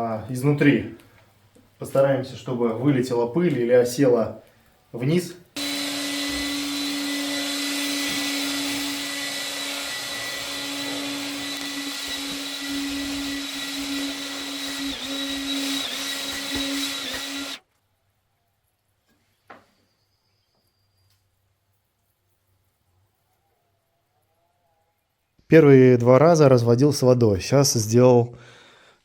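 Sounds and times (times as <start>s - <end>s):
air blower motor whine: 5.6s - 17.6s.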